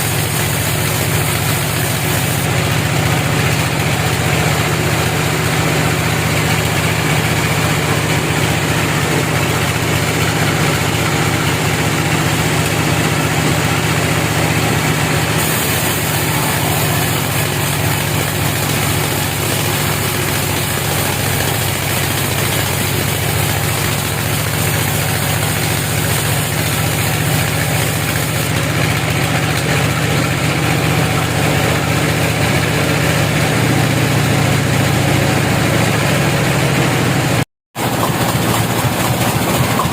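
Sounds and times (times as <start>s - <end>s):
broad machinery hiss: 0.0s - 2.8s, 8.7s - 30.0s
sawmill machinery engine hum: 0.0s - 39.9s.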